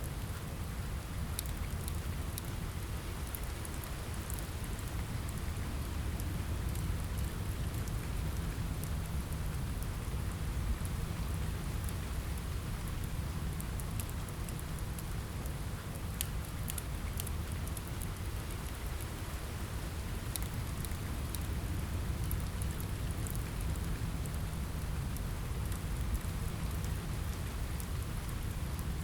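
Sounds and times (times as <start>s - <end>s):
steady rain: 0.0s - 29.0s
wood fire crackling: 10.8s - 29.0s.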